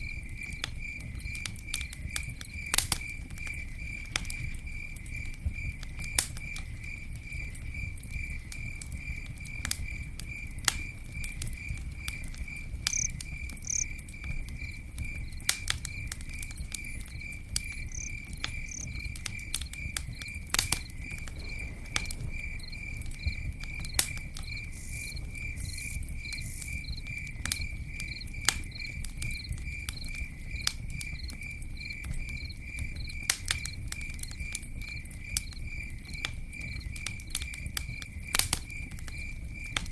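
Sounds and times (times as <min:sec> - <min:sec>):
campfire crackling and popping: 0:00.0 - 0:39.9
insect chirping: 0:06.4 - 0:33.7.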